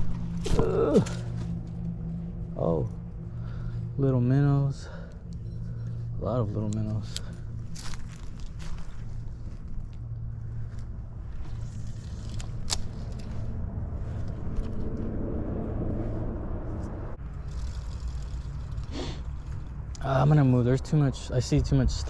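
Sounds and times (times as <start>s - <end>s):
faint hum: 0.0s - 22.0s
steady low rumble: 0.0s - 22.0s
rustling: 6.8s - 14.9s.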